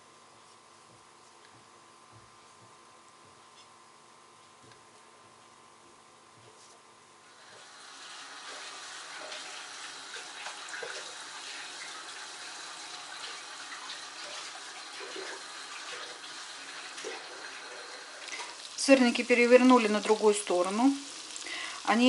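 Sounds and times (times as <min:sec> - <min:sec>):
pancakes sizzling in hot oil: 0:07.3 - 0:22.0.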